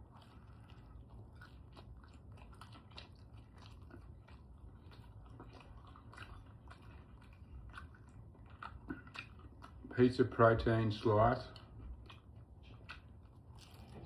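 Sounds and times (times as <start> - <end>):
person chewing crunchy food: 0.0 - 14.0.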